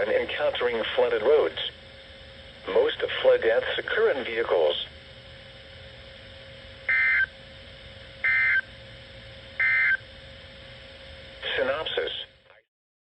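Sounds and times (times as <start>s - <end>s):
radio hiss: 0.0s - 5.0s, 11.4s - 12.7s
faint steady hum: 0.0s - 12.7s.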